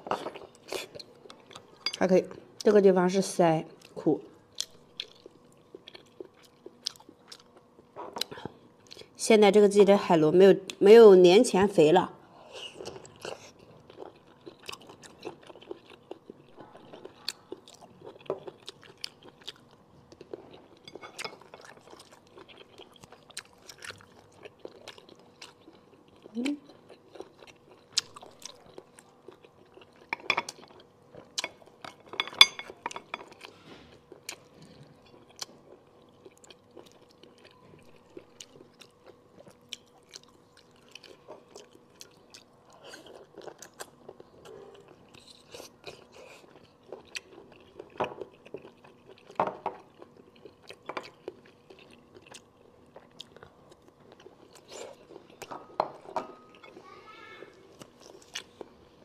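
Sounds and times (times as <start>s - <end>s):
close chewing and biting: 12.7s - 55.8s, 57.6s - 58.8s.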